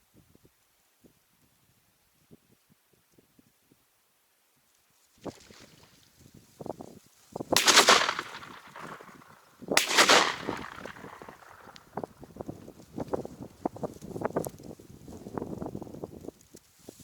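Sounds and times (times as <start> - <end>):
shotgun shots: 7.6 - 12.0.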